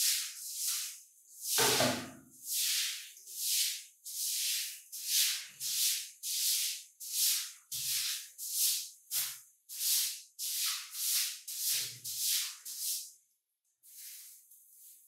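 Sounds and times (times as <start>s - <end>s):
brush rubbing over surface: 2.6s - 13.1s, 13.8s - 15.0s.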